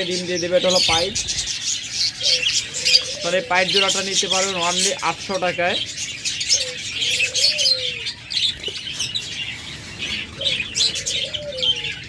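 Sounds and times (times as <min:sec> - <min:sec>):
budgerigars chattering and chirping: 0:00.0 - 0:12.0
soft cooing calls: 0:00.7 - 0:04.1, 0:06.4 - 0:12.0.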